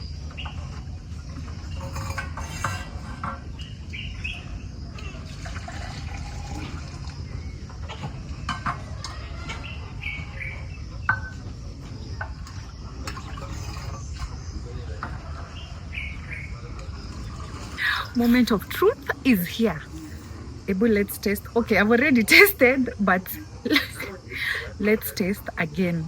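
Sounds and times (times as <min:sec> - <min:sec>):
liquid pouring: 0:04.9 - 0:08.1, 0:12.4 - 0:14.3, 0:16.7 - 0:19.4.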